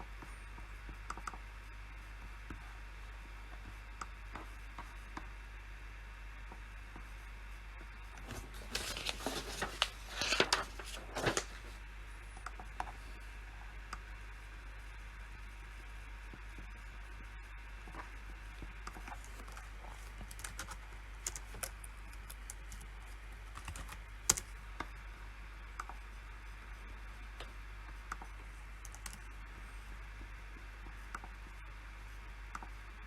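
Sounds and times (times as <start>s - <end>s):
typing on a keyboard: 18.9s - 24.5s, 28.8s - 29.3s.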